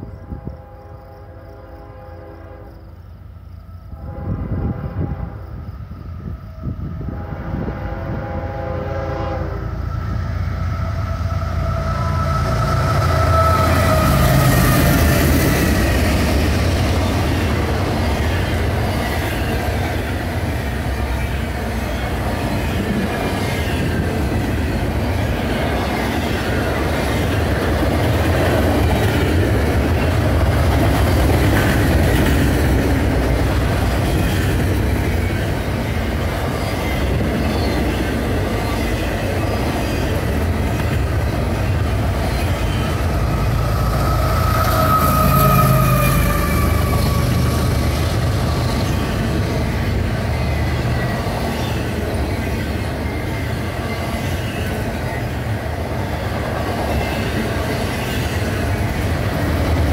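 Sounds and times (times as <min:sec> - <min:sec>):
train horn: 0:00.0 - 0:03.2, 0:03.8 - 0:10.2, 0:10.8 - 0:19.9, 0:42.8 - 0:48.5
diesel locomotives passing: 0:00.0 - 0:59.9.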